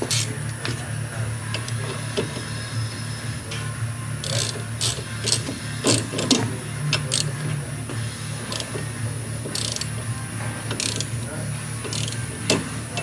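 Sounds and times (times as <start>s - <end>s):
hand tools clicking and clinking: 0.0s - 0.9s, 3.5s - 7.6s, 8.4s - 10.0s, 10.7s - 13.0s
low hum of shop machinery: 0.0s - 13.0s.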